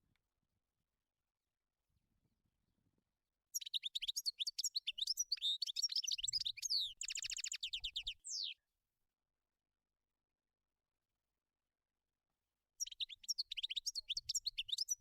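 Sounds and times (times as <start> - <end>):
goldfinch singing: 3.6 - 8.6, 12.8 - 15.0.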